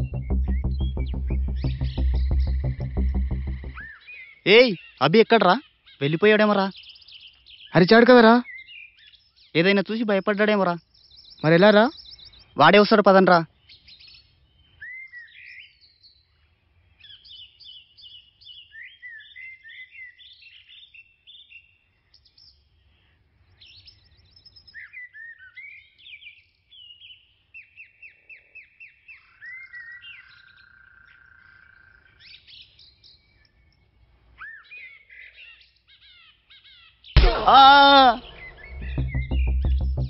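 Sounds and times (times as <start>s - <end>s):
buzzy bird note: 0.0s - 3.9s, 37.2s - 40.0s
wild birds chirping: 0.0s - 40.0s.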